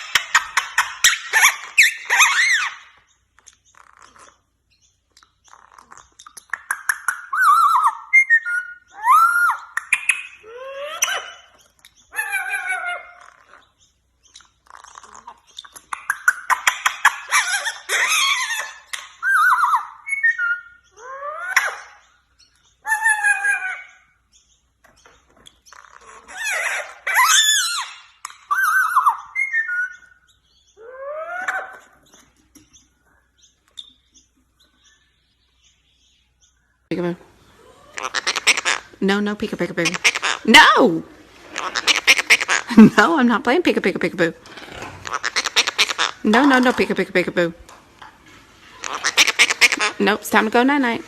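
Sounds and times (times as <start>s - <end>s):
parrot whistling and calling: 0.0s - 4.3s, 5.3s - 24.4s, 25.7s - 32.2s, 37.4s - 43.1s, 44.7s - 47.2s, 48.6s - 51.0s
parrot chattering: 0.0s - 22.2s, 22.8s - 24.2s, 25.6s - 32.2s, 36.9s - 47.6s, 48.6s - 51.0s
faint chirps and clicks: 2.8s - 12.2s, 13.0s - 17.3s, 18.8s - 22.9s, 23.9s - 26.3s, 28.2s - 30.8s, 31.4s - 39.0s.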